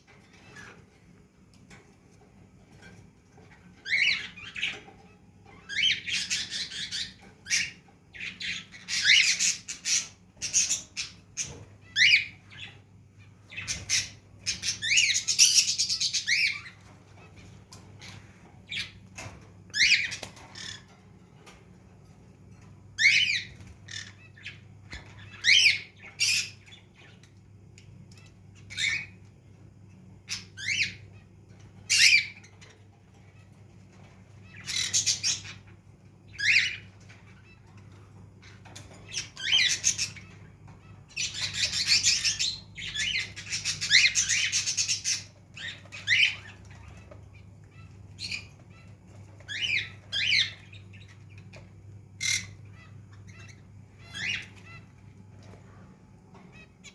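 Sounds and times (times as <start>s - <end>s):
pet bird squawking: 52.2s - 55.0s.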